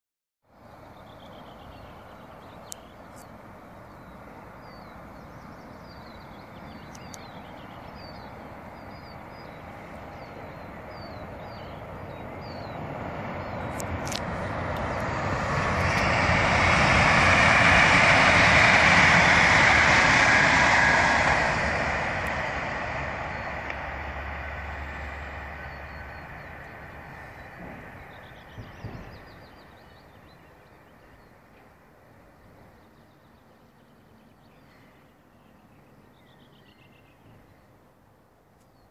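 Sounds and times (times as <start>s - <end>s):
electric train passing: 0.6s - 33.6s.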